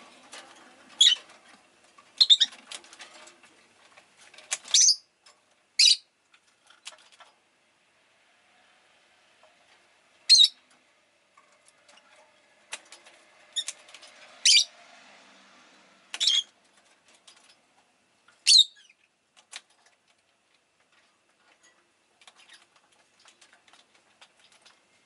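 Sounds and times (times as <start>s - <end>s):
lovebird chirping: 1.0s - 1.2s, 2.2s - 2.6s, 4.7s - 5.1s, 5.8s - 6.1s, 10.3s - 10.6s, 14.4s - 14.7s, 16.1s - 16.5s, 18.4s - 19.0s.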